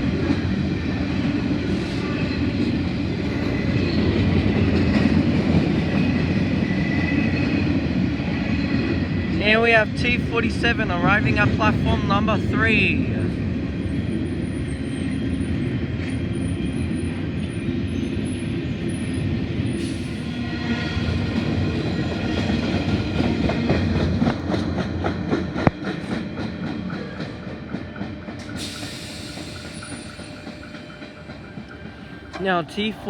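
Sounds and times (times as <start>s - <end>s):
train motors and wheels rumbling: 0.0s - 33.0s.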